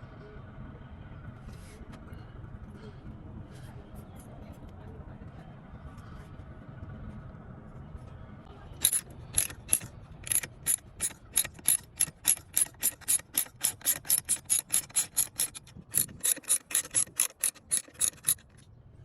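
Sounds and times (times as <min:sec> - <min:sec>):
ratchet wrench clicking: 0:08.8 - 0:18.6.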